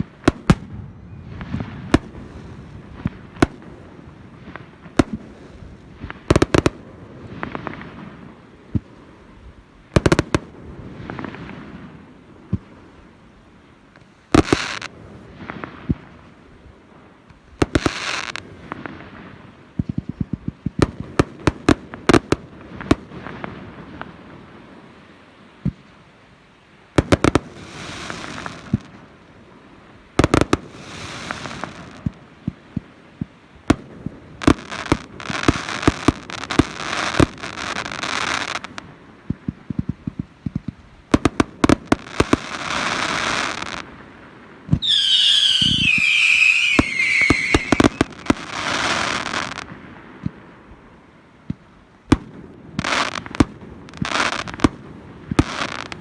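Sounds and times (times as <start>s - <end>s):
fireworks bursting with sharp bangs: 0.0s - 26.0s, 26.7s - 56.0s
fireworks crackling: 0.0s - 26.0s, 26.7s - 56.0s.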